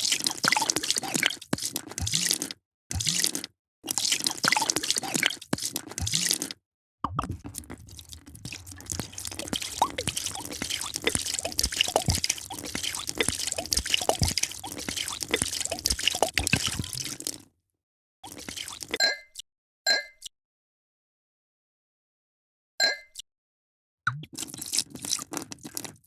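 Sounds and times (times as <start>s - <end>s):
bubbling pops and gurgles: 0.0s - 17.5s, 18.2s - 19.0s, 24.1s - 26.0s
drink pouring into a glass: 7.2s - 17.4s, 18.2s - 19.0s, 24.4s - 26.0s.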